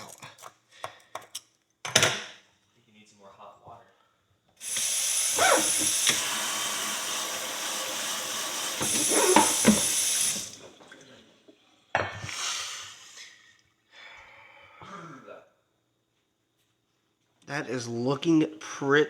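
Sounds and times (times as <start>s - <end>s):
tap water running into sink: 4.6s - 11.1s.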